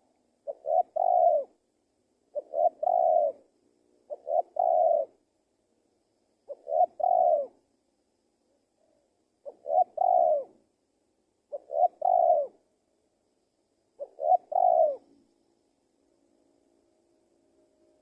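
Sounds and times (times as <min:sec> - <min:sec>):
dove cooing: 0:00.0 - 0:01.6, 0:02.3 - 0:03.5, 0:04.1 - 0:05.2, 0:06.4 - 0:07.6, 0:08.8 - 0:10.6, 0:11.5 - 0:12.6, 0:14.0 - 0:15.1.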